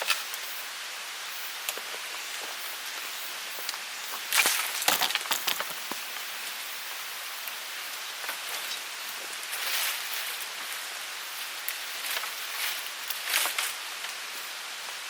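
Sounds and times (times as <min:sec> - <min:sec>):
sharp clicks and crackles: 0:03.6 - 0:06.2.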